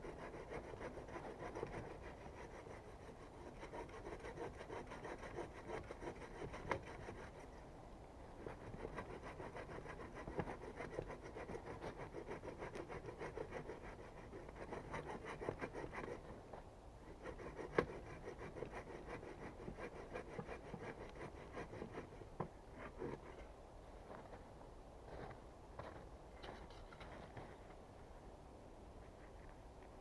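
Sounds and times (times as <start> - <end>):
rhythmic scraping on wood: 0.0 - 7.6, 8.4 - 23.5.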